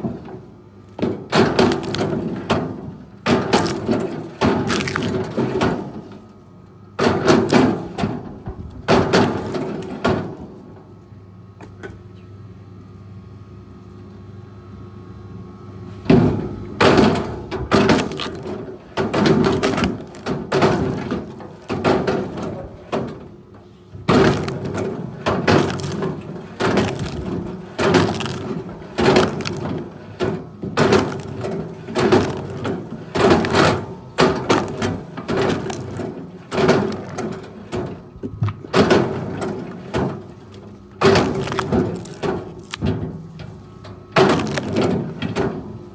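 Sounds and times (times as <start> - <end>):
heavy machine engine running: 0.0 - 6.3, 16.0 - 45.9
wood cracking and splintering: 1.0 - 6.2, 7.0 - 8.2, 8.9 - 10.0, 16.8 - 23.4, 24.0 - 45.6.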